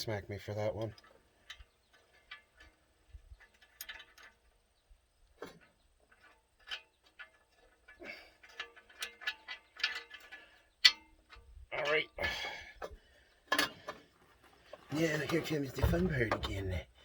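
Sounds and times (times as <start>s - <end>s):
light metal clinks and taps: 5.4s - 11.5s.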